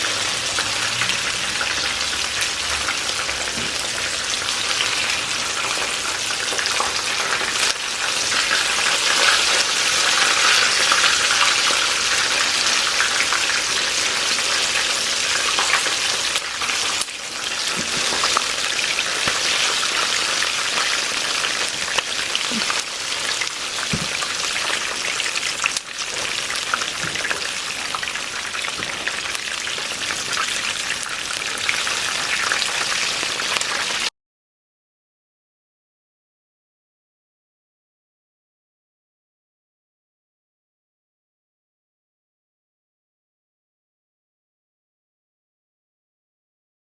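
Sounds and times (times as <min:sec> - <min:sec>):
chicken frying in oil: 0:00.0 - 0:34.1.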